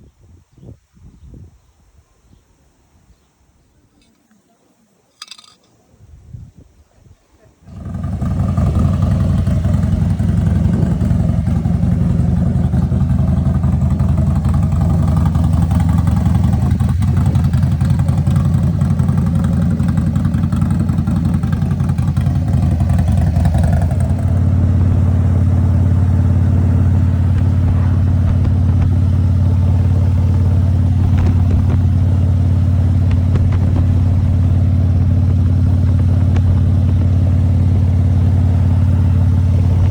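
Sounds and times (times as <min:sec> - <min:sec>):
small clicks: 0:05.1 - 0:05.8
motorcycle engine running loudly: 0:07.7 - 0:39.9.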